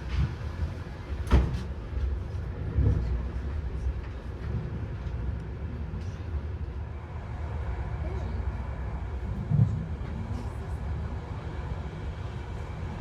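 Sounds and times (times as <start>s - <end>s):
train carriage rumble: 0.0s - 13.0s.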